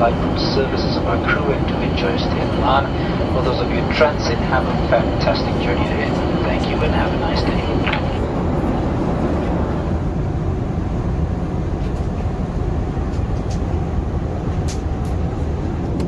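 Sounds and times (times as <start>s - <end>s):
airplane cabin engine and airflow noise: 0.0s - 16.0s
faint clicks: 0.2s - 8.4s.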